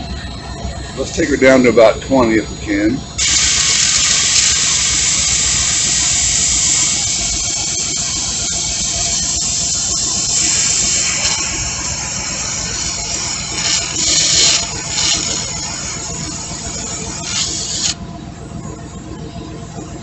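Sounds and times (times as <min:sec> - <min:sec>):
air hissing out of tire: 0:03.2 - 0:18.0.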